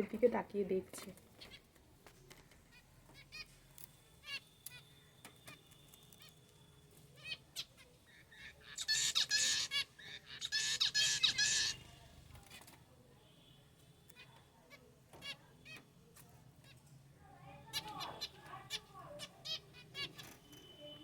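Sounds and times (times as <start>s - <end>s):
finches chirping: 2.7s - 12.6s, 17.6s - 20.8s.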